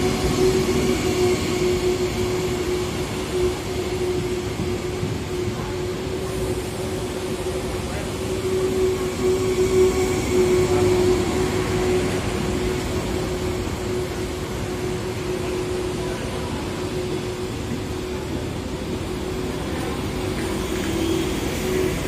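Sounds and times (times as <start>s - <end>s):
train wheel rumble and hum: 0.0s - 22.0s.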